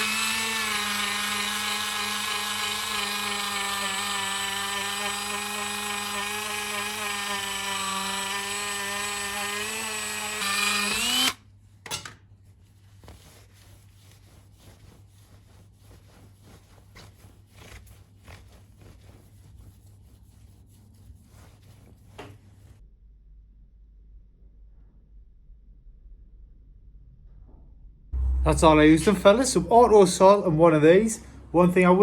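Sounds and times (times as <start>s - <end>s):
rotary tool whining: 0.0s - 11.4s.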